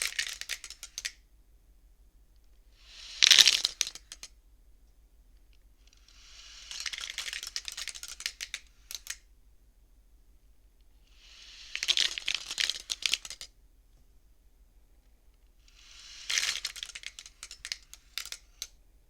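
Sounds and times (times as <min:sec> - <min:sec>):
abacus beads clacking: 0:00.0 - 0:01.2, 0:02.8 - 0:04.3, 0:05.8 - 0:09.3, 0:11.1 - 0:13.5, 0:15.7 - 0:18.8
abacus beads sliding: 0:00.0 - 0:01.2, 0:02.8 - 0:04.3, 0:05.8 - 0:09.3, 0:11.0 - 0:13.5, 0:15.6 - 0:18.8.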